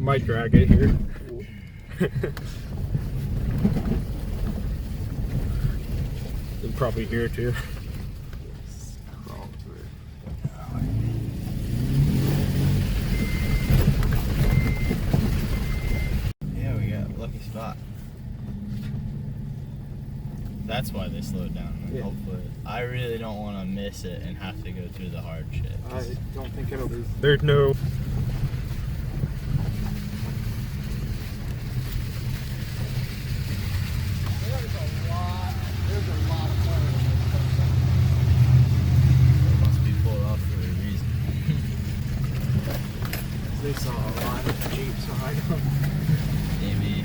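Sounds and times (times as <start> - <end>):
tyres crackling and knocking: 0.0 - 1.4, 2.2 - 47.0
truck engine at crawling speed: 0.0 - 47.0.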